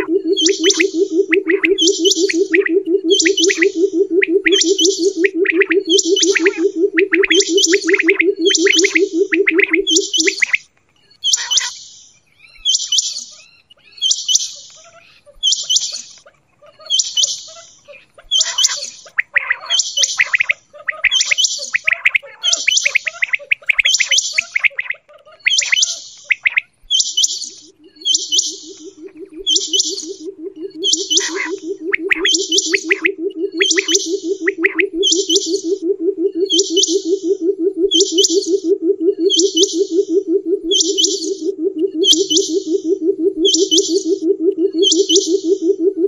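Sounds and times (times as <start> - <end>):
quail calling: 0.0 - 45.9
low fast purring trill: 27.8 - 36.6.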